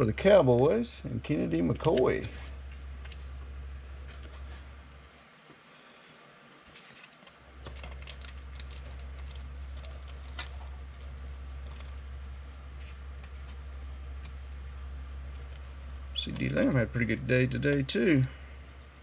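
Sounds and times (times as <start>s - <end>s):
low hum: 6.7s - 19.0s.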